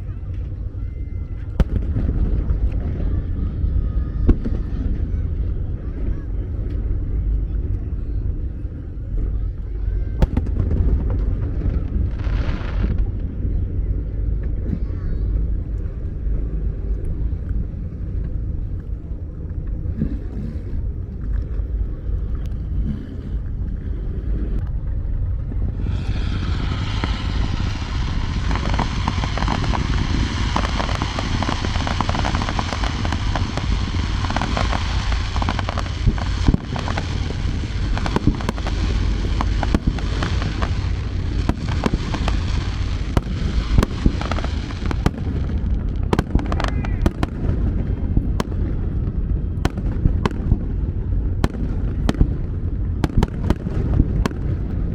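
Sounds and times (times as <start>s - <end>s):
fireworks crackling: 0.0s - 7.0s, 10.1s - 13.2s, 25.6s - 54.9s
low rumble: 0.0s - 54.9s
fireworks bangs: 1.3s - 3.6s, 10.2s - 13.2s, 25.7s - 54.9s.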